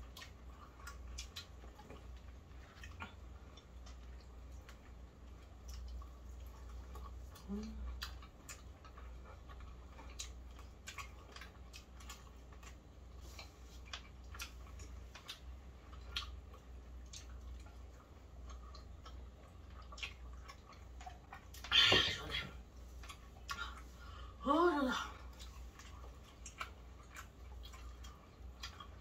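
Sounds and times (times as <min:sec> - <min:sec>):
fried chicken crunching: 0:05.6 - 0:21.9.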